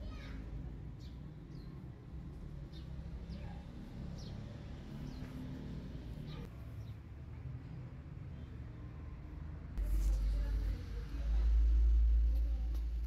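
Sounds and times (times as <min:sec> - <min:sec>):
small birds chirping: 0:00.1 - 0:07.1.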